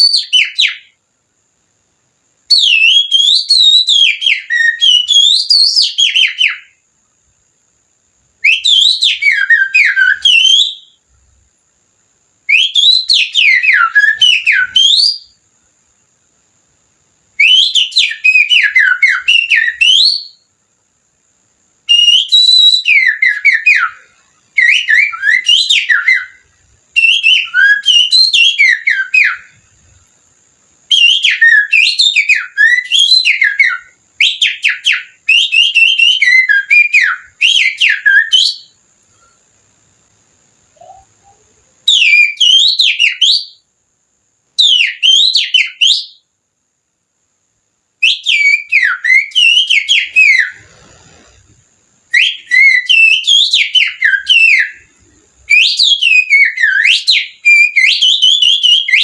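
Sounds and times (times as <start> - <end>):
finger whistling birdsong imitation: 0.0 - 1.0, 2.5 - 6.8, 8.4 - 11.0, 12.4 - 15.4, 17.4 - 20.5, 21.8 - 29.7, 30.9 - 39.4, 40.7 - 43.6, 44.6 - 46.2, 48.0 - 51.5, 52.1 - 59.0.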